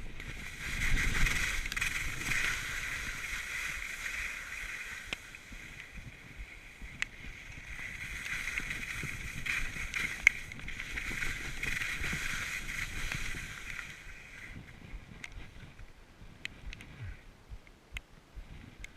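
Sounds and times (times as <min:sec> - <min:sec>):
skis swishing on hard snow: 0:00.0 - 0:15.8.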